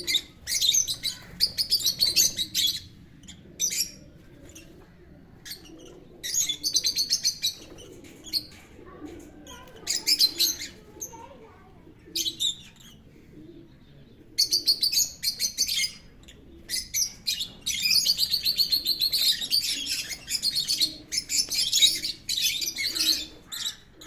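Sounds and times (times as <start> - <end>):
small parrots chirping: 14.4 - 23.9.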